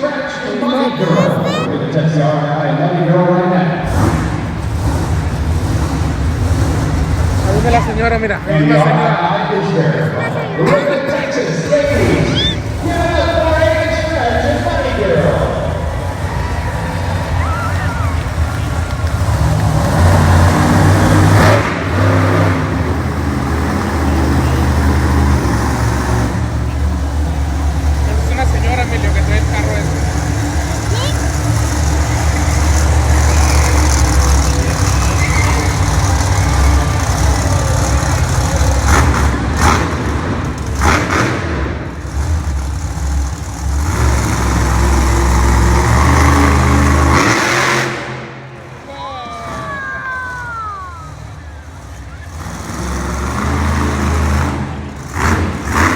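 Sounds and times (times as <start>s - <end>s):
monster truck engine revving: 0.0s - 55.9s.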